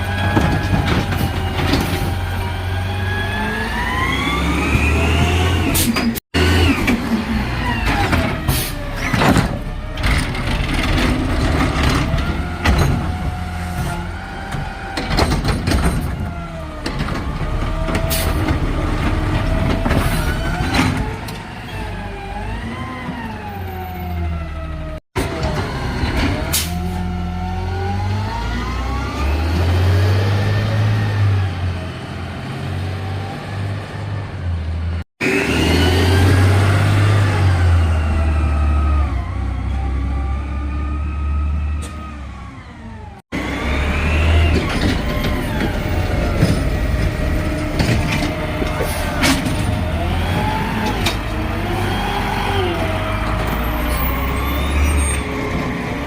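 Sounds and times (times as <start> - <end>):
garbage truck engine revving: 0.0 - 56.0
knocks and clatter: 9.0 - 13.4, 14.4 - 21.4, 44.5 - 51.3.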